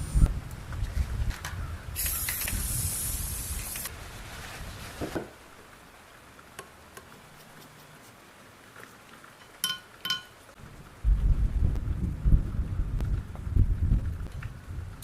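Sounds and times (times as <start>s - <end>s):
hiss of spray: 2.0s - 3.9s
low rumble: 10.6s - 15.0s.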